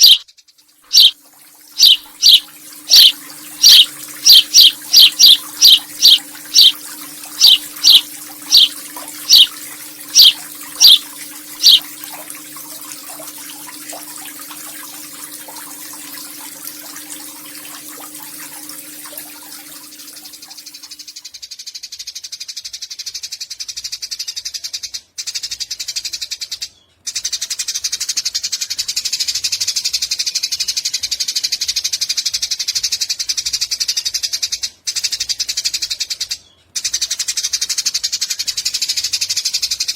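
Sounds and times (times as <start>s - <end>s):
rapid high buzzing chatter: 0.0s - 0.2s, 0.9s - 1.2s, 1.8s - 11.8s
sparrow sharp falling chirps: 0.0s - 0.2s, 1.0s - 1.2s, 1.8s - 6.8s, 7.4s - 8.7s, 9.3s - 9.5s, 10.2s - 11.0s, 11.6s - 11.8s.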